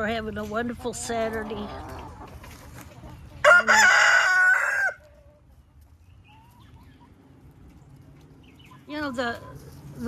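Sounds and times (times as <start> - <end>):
rooster crowing loudly: 3.4 - 5.0.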